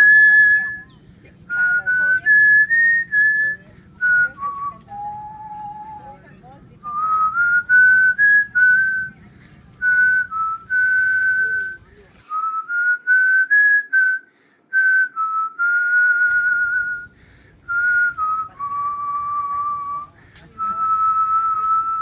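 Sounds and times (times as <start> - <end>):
person whistling a tune: 0.0 - 6.2, 6.8 - 9.2, 9.8 - 17.1, 17.7 - 22.0.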